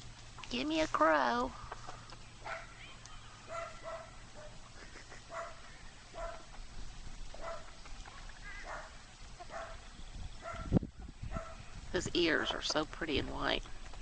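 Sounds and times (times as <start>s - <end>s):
dog barking: 2.4s - 2.8s, 3.5s - 4.6s, 5.3s - 6.5s, 7.4s - 7.7s, 8.6s - 8.9s, 9.5s - 9.8s, 10.4s - 10.7s, 11.3s - 11.6s.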